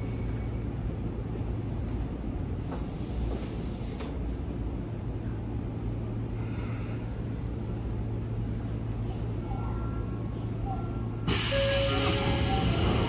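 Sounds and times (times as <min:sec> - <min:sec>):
train car hum and rumble: 0:00.0 - 0:13.0.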